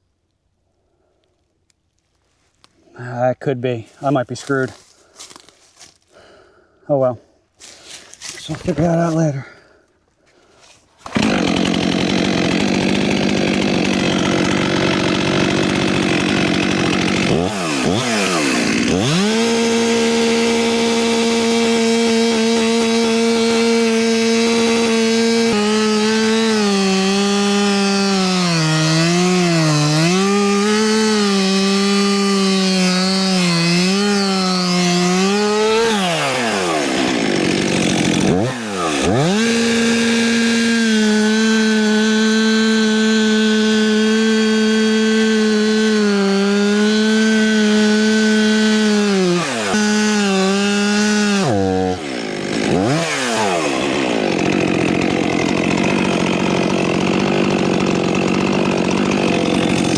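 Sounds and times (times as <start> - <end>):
chainsaw cutting wood: 11.0 - 59.9.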